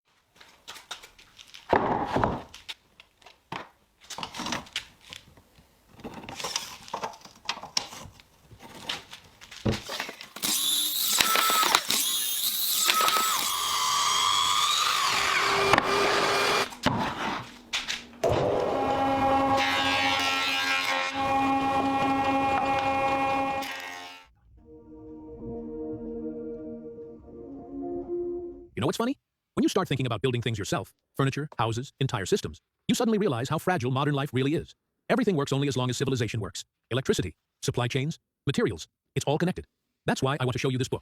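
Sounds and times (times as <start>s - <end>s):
knocks and scrapes: 5.9s - 10.2s, 16.7s - 18.7s
power tool whining: 10.4s - 16.8s, 18.2s - 24.3s.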